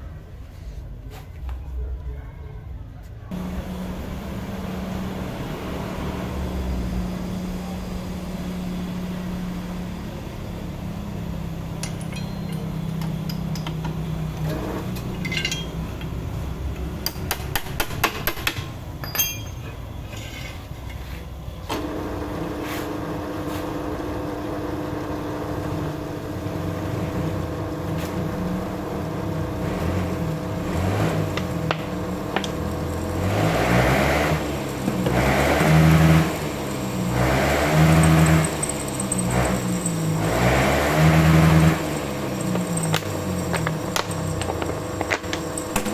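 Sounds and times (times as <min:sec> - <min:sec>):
metal clinking and knocking: 0:11.7 - 0:20.4, 0:31.1 - 0:45.9
motor humming: 0:30.4 - 0:45.9
drill working into steel: 0:31.1 - 0:45.9.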